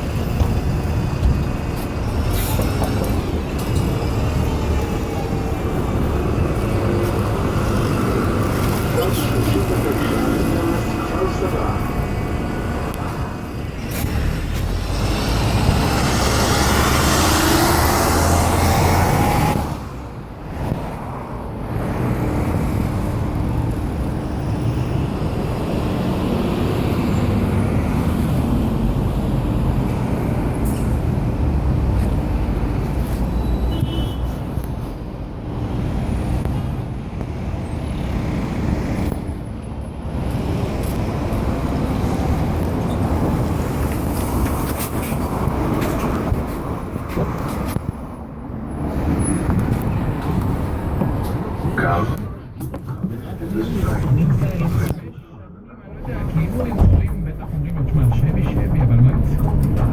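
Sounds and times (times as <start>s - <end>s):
bus diesel engine drone: 0.0s - 33.5s, 34.5s - 59.9s
road traffic: 0.0s - 59.9s
loud noisy rush: 55.9s - 59.9s.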